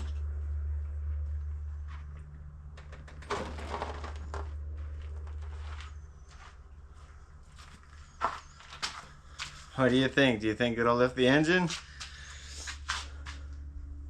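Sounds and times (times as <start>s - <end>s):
steady low hum: 0.0s - 14.0s
scraping: 2.0s - 6.6s.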